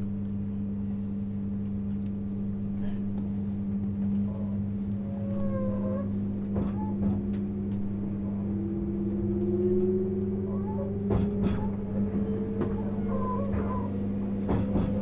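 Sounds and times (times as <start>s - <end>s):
train cabin low hum: 0.0s - 15.0s
rising train motor whine: 3.2s - 15.0s.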